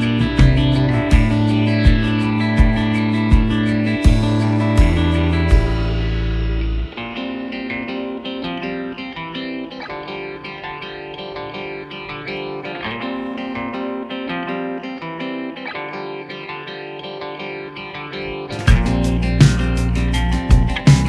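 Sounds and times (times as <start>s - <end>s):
loud sound with heavy low rumble: 0.0s - 7.0s, 18.7s - 21.0s
plucked guitar melody with effects: 0.0s - 21.0s.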